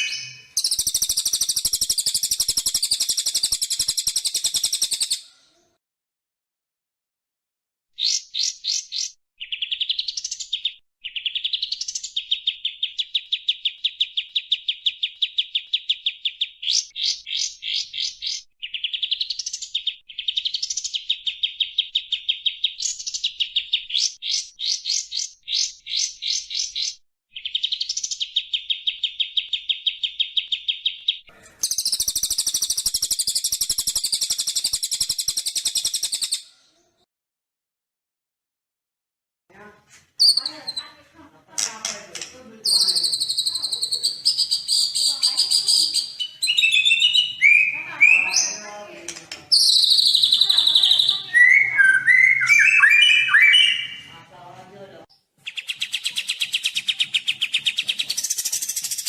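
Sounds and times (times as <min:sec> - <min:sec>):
harsh high buzzy bird trill: 0:00.0 - 0:05.2, 0:28.5 - 0:36.4, 0:42.7 - 0:48.6, 0:49.5 - 0:54.1
songbird fast trills: 0:00.0 - 0:05.2, 0:31.6 - 0:36.4, 0:42.7 - 0:48.2, 0:49.5 - 0:54.0.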